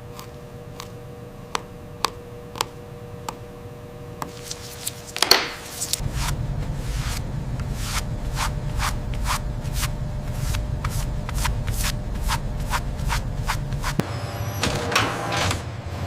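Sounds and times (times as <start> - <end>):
low steady hum: 0.0 - 14.5
rhythmic rubbing strokes: 4.3 - 14.0.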